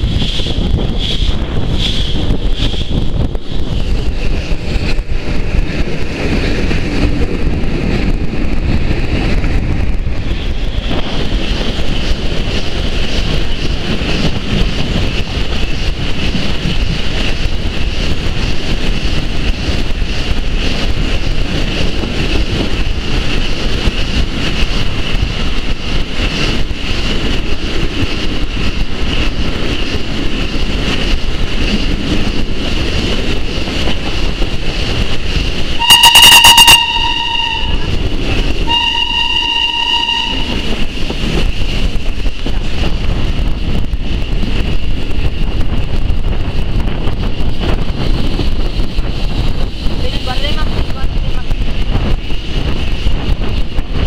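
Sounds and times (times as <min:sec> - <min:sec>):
train wheels rumbling on rail: 0:00.0 - 0:54.0
wind buffeting microphone: 0:00.0 - 0:54.0
high-pitched ring: 0:35.8 - 0:37.8, 0:38.7 - 0:40.6.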